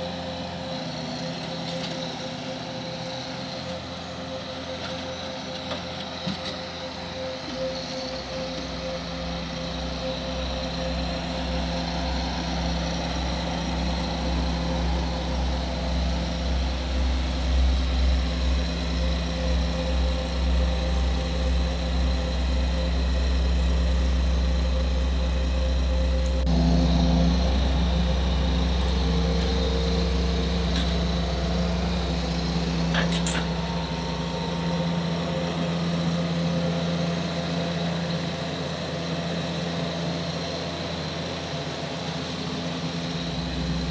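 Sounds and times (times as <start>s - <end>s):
engine running: 0.0s - 43.9s
deep rumble: 10.2s - 37.0s.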